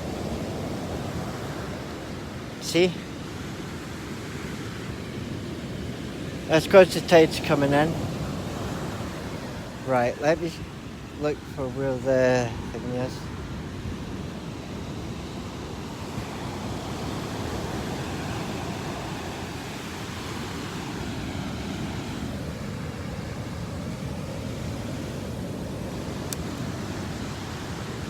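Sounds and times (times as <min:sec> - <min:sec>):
sea waves washing on beach: 0:00.0 - 0:28.0.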